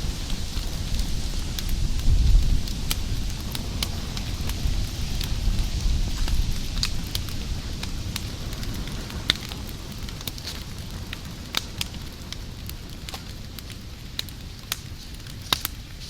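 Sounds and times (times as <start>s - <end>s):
low rumble: 0.0s - 9.0s
fire crackling with pops: 0.0s - 16.0s.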